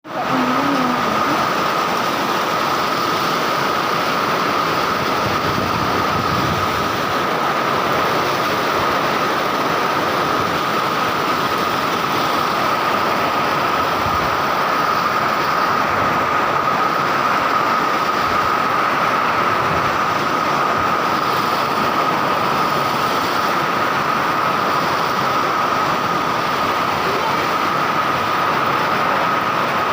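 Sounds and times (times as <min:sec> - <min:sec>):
strong wind rushing: 0:00.0 - 0:10.7.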